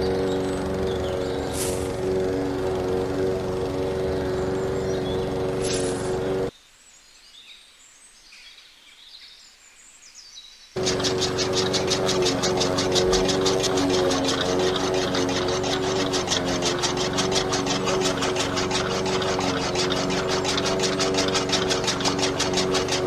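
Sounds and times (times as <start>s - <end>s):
small electric motor humming: 0.0s - 6.5s, 10.8s - 23.0s
fast mechanical ticking: 10.8s - 23.0s.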